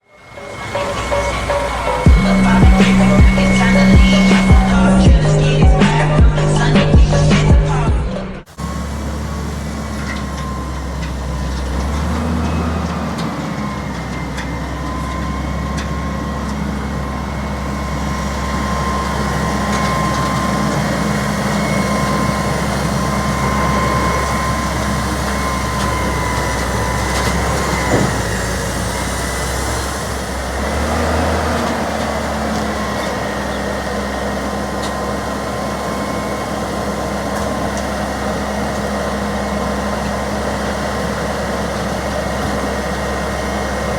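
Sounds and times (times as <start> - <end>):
high whine: 0.0 - 8.9
garbage truck engine running: 0.0 - 43.9.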